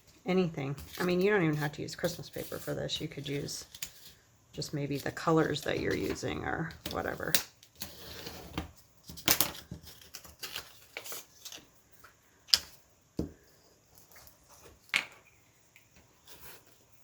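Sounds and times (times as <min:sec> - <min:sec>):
paper rustling and crinkling: 0:09.0 - 0:11.7.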